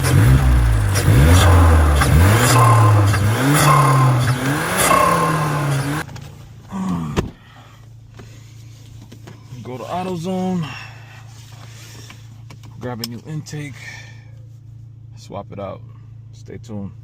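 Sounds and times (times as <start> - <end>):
car engine revving: 0.0 - 6.1.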